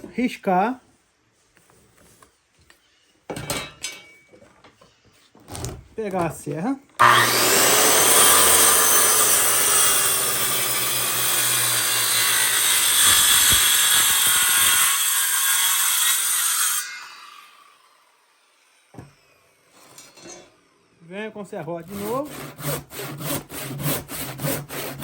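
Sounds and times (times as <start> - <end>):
electric saw cutting wood: 7.0 - 21.0, 21.8 - 25.0.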